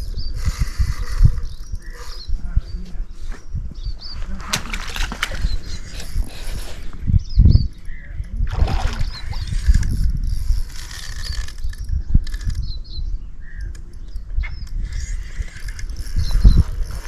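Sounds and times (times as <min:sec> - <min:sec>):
small birds chirping: 0:00.0 - 0:17.0
handling knocks and rustles: 0:04.2 - 0:06.9.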